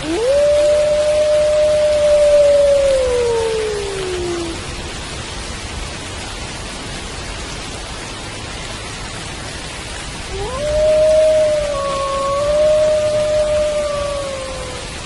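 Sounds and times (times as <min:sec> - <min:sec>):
wolf howling: 0:00.0 - 0:04.6, 0:10.3 - 0:15.0
rain hiss: 0:00.0 - 0:15.0.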